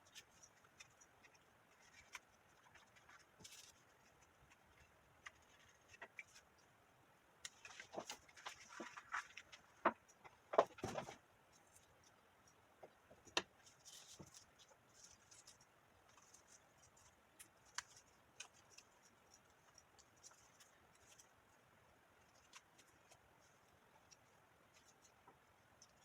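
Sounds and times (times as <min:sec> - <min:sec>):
paper rustling: 0:00.0 - 0:06.4
cardstock clicks and crinkles: 0:00.0 - 0:06.5, 0:12.8 - 0:21.4.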